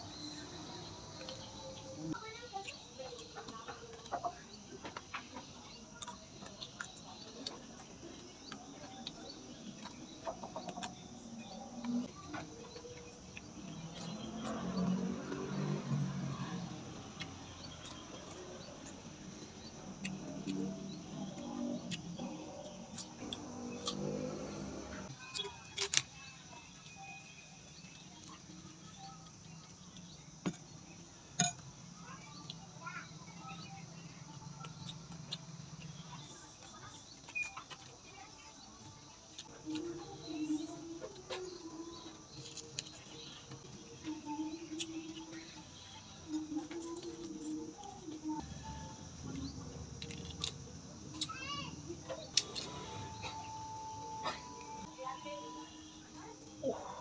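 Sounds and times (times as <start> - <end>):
quiet chewing: 1.0 - 24.4, 33.4 - 54.9
person chewing and crunching: 17.0 - 24.5, 47.0 - 51.3.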